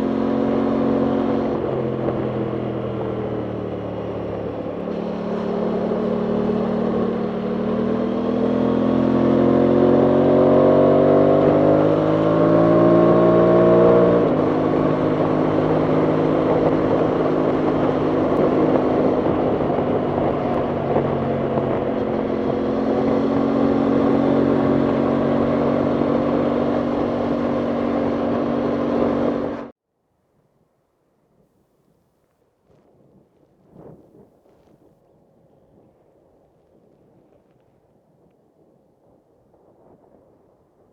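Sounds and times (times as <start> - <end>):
motorcycle engine accelerating: 0.0 - 29.7
wind noise on microphone: 4.4 - 29.7, 32.6 - 40.9.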